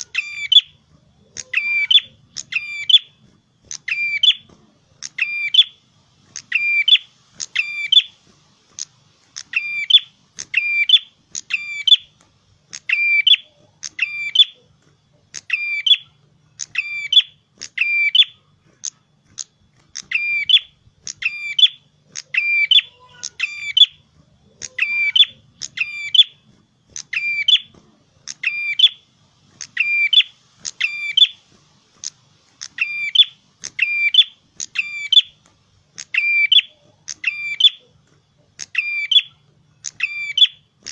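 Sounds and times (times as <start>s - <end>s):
songbird chirping: 0.0s - 40.9s.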